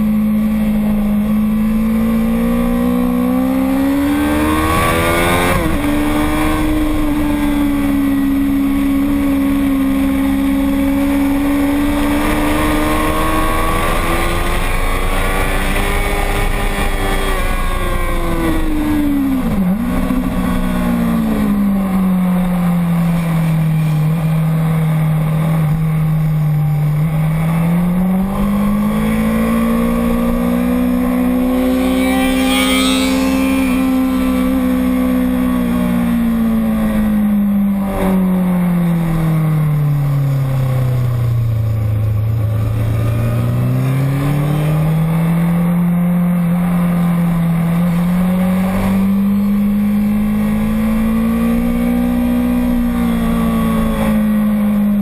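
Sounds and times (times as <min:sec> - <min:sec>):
motorcycle engine running: 0:00.0 - 0:48.2.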